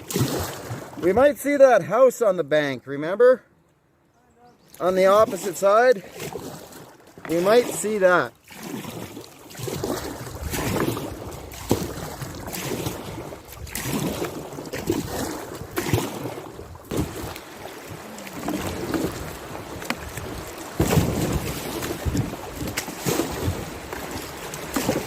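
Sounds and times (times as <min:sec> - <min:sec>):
water splashing and sloshing: 0:00.0 - 0:01.6, 0:04.6 - 0:25.0
paddle strokes: 0:04.6 - 0:25.0
knocks against hull: 0:16.8 - 0:17.4, 0:18.4 - 0:24.0.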